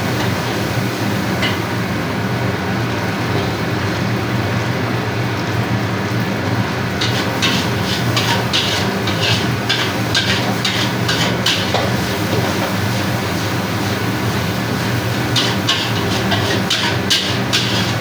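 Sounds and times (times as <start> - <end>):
metal spatula scraping a wok: 7.0 - 18.0.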